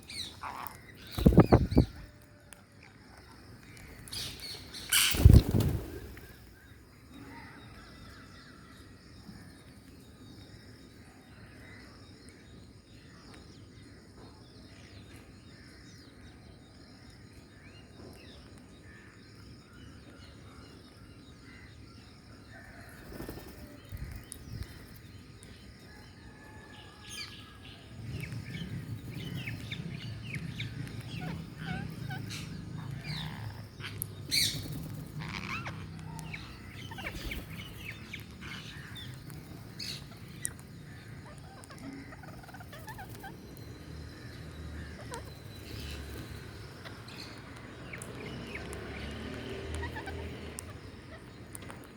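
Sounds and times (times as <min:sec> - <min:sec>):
parrots chirping and calling: 0:00.0 - 0:02.0, 0:04.1 - 0:05.5, 0:29.2 - 0:43.7, 0:44.6 - 0:51.7.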